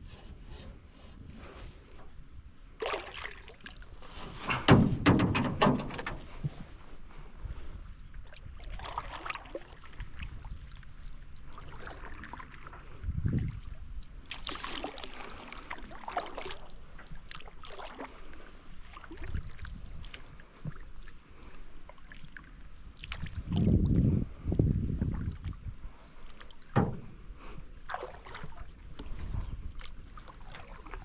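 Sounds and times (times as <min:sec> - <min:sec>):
paddle splashing in water: 0:02.8 - 0:06.7, 0:08.6 - 0:12.7, 0:14.2 - 0:20.8, 0:27.9 - 0:31.0
low thump: 0:04.5 - 0:06.6, 0:26.8 - 0:27.2.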